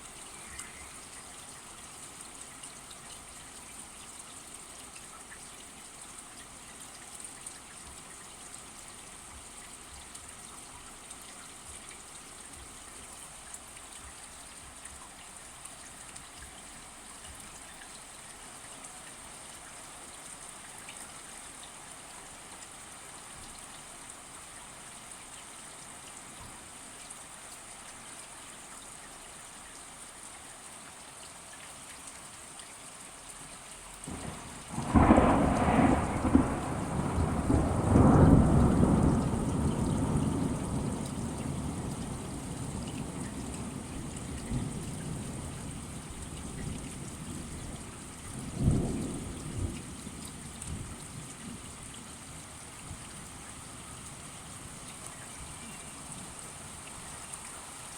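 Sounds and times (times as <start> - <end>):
steady rain: 0.0 - 57.9
rain drop ticks: 0.1 - 1.4, 33.5 - 47.4
thunder rumble: 34.1 - 47.5.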